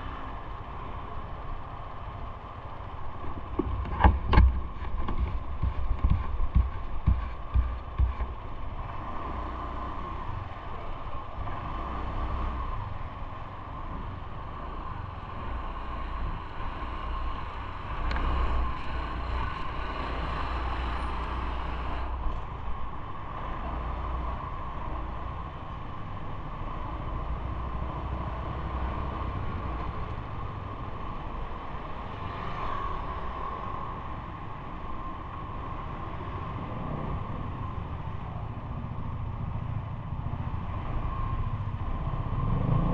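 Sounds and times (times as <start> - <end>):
bike ride noise: 0.0 - 42.9
constant hum: 0.0 - 42.9
wind rumbling on microphone: 0.0 - 42.9
knocks: 3.5 - 8.3.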